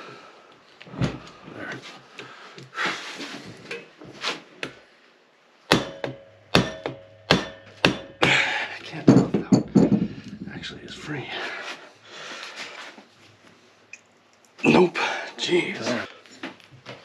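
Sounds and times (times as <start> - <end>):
hammer striking metal ringing: 5.7 - 8.4.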